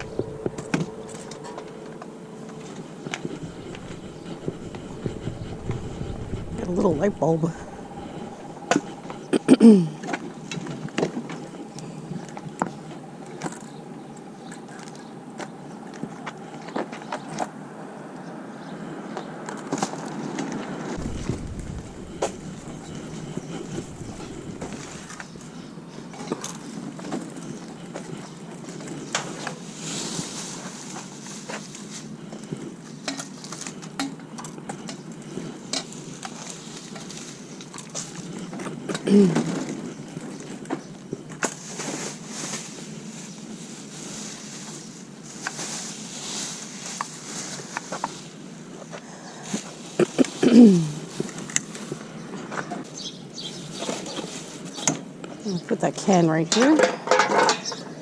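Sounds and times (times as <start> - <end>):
low rumble: 0.0 - 10.8, 21.0 - 26.0
outdoor background noise: 0.0 - 58.0.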